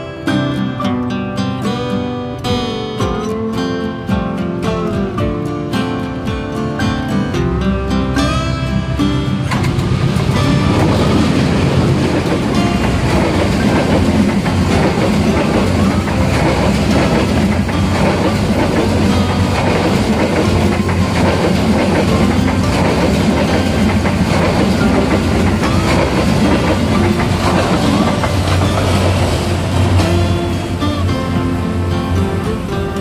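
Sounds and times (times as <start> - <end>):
train rumble: 7.3 - 33.0
wheels clicking over rail joints: 8.2 - 33.0.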